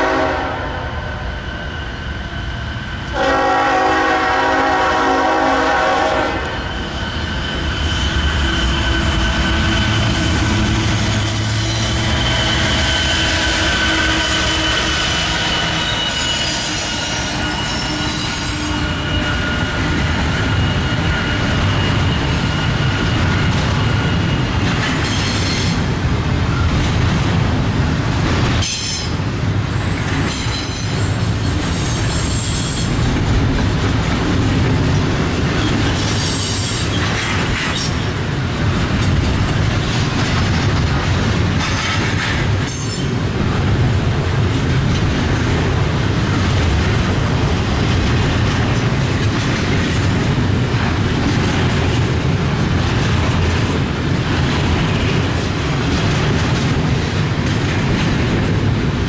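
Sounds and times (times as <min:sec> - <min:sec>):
train wheels rumbling on rail: 0:00.0 - 0:59.0
high-pitched wheel squeals: 0:06.6 - 0:25.8.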